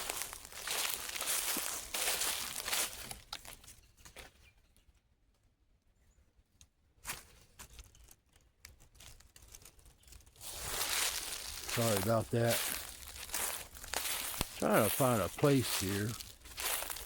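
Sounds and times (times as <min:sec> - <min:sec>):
footsteps through dry leaves: 0:00.0 - 0:03.6, 0:09.1 - 0:17.0
leaves and twigs crackling: 0:00.0 - 0:03.8, 0:07.0 - 0:17.0.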